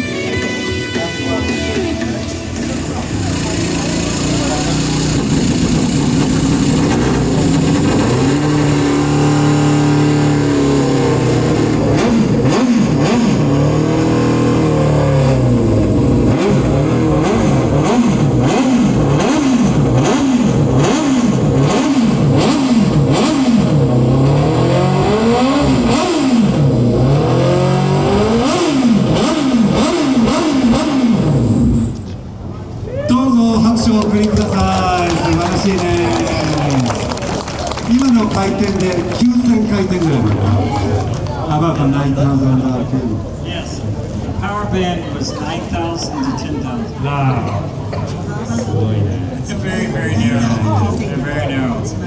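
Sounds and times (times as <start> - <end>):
motorcycle engine revving: 1.8 - 32.5.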